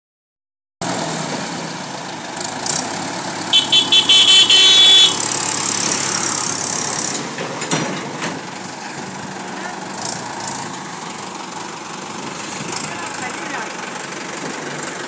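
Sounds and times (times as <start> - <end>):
tractor engine running: 0.8 - 15.0
vehicle horn toots: 3.5 - 5.3.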